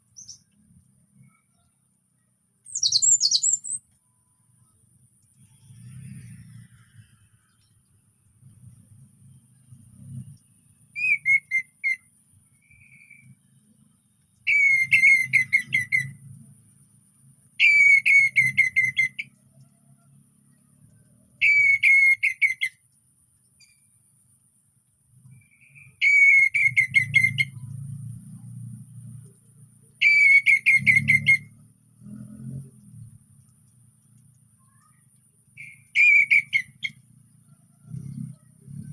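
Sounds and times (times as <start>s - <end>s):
thrush whistled song: 0.0s - 1.7s, 2.6s - 4.7s, 8.4s - 13.5s, 14.2s - 16.5s, 17.5s - 19.7s, 20.6s - 22.9s, 23.6s - 24.0s, 25.2s - 33.5s, 34.6s - 38.9s.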